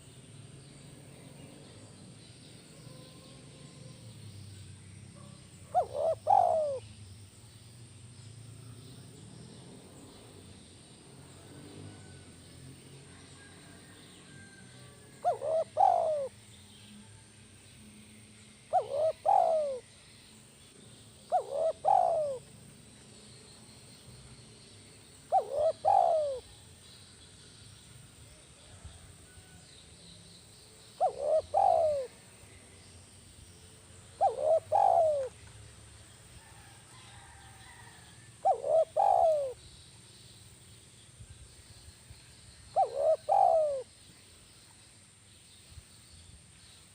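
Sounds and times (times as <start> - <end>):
dove cooing: 5.2 - 6.8, 14.4 - 16.4, 18.7 - 19.8, 21.3 - 22.5, 25.3 - 26.6, 31.0 - 32.3, 34.1 - 35.4, 38.4 - 39.6, 42.8 - 43.9.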